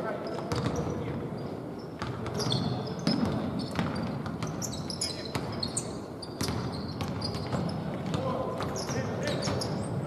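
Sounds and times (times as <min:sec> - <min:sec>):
basketball bouncing on court: 0:00.4 - 0:00.9, 0:02.0 - 0:04.7, 0:05.3 - 0:05.6, 0:06.4 - 0:10.0.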